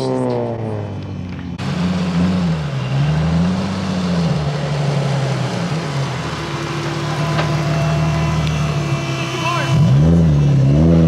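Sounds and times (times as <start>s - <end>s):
car engine revving: 0.0s - 11.0s
loud rushing noise: 4.0s - 10.5s.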